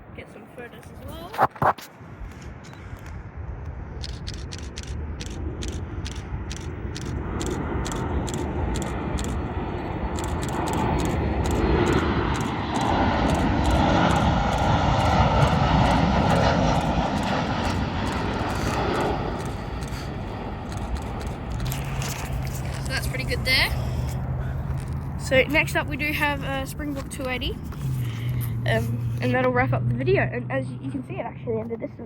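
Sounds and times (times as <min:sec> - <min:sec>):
jet engines roaring: 0:02.0 - 0:31.8
camera shutter clicks: 0:04.0 - 0:09.4, 0:10.2 - 0:13.8.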